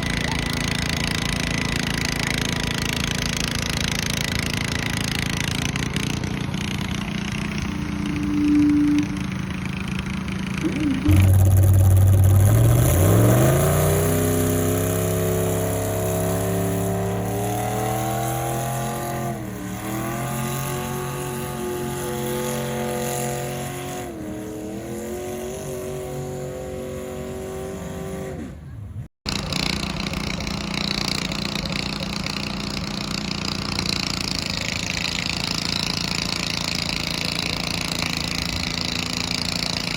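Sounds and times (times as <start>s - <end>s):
tractor engine revving: 0.0s - 28.7s, 29.3s - 39.9s.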